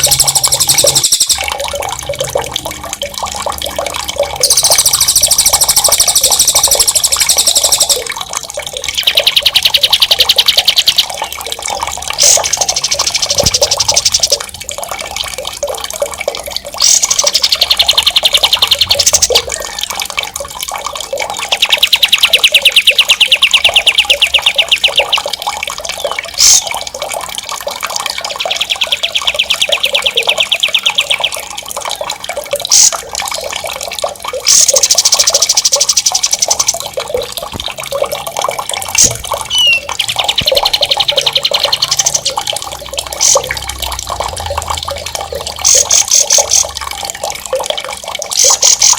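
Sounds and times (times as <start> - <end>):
songbird fast rolling trills: 0.0 - 1.5, 4.4 - 8.1, 39.0 - 42.4
running water: 0.0 - 48.9.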